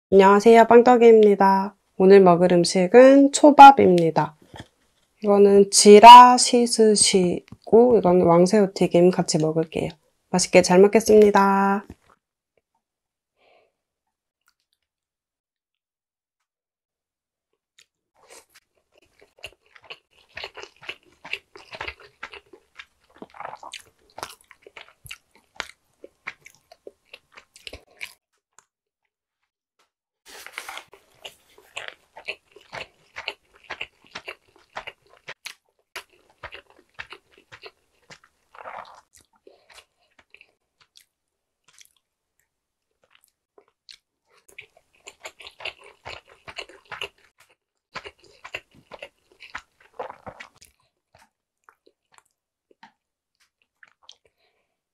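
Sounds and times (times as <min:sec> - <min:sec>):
person chewing crunchy food: 0:04.4 - 0:05.2, 0:11.8 - 0:12.2, 0:17.8 - 0:28.2, 0:30.3 - 0:54.8.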